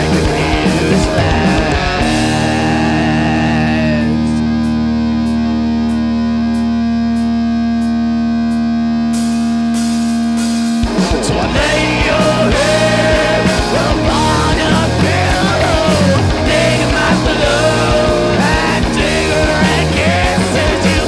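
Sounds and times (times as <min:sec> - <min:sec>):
held electric guitar chord: 0:00.0 - 0:21.0
rock band playing with drums: 0:00.0 - 0:21.0.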